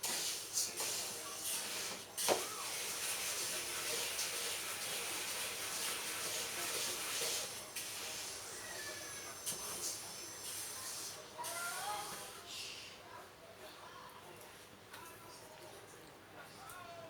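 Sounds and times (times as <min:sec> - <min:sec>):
seeds roasting in a pan: 0:00.0 - 0:12.4.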